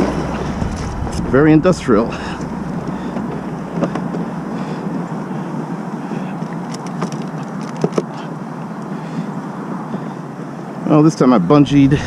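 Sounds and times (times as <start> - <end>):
deep rumble: 0.0 - 6.1, 11.4 - 12.0
outdoor background noise: 0.0 - 12.0.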